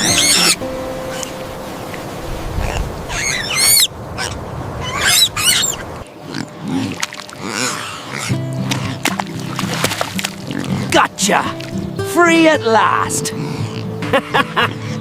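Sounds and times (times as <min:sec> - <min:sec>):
piglet squealing: 0:00.0 - 0:01.2, 0:02.6 - 0:09.0
piglet grunting: 0:06.2 - 0:09.1, 0:13.2 - 0:14.0.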